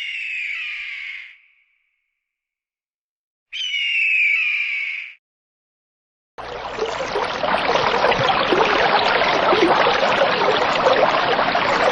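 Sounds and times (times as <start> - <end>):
running water splashing: 6.4 - 11.9.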